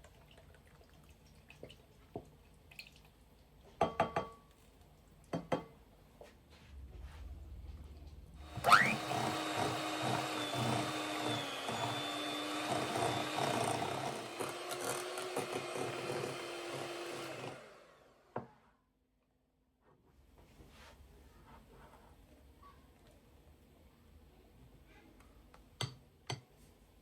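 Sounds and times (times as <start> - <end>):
electric motor whining: 8.4 - 17.8.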